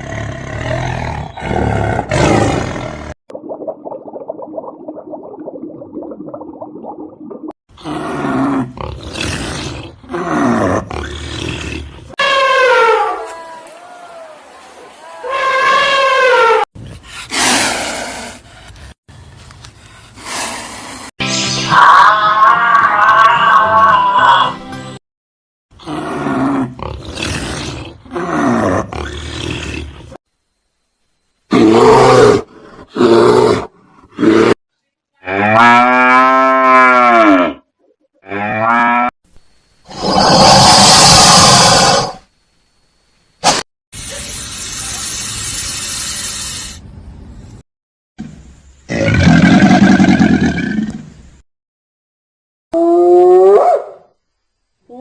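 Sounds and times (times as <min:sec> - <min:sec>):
big cat roaring: 0:00.0 - 0:03.2
big cat roaring and growling: 0:00.0 - 0:03.2, 0:25.8 - 0:30.2, 0:31.5 - 0:34.6, 0:39.9 - 0:42.2, 0:48.9 - 0:51.1
animal cry sliding downward: 0:21.7 - 0:24.5.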